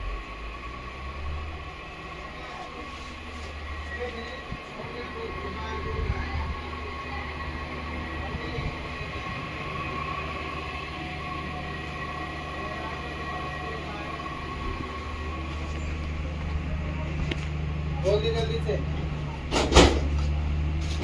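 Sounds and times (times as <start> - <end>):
train rumbling on track: 0.0 - 21.0
high-pitched tone: 2.1 - 17.3.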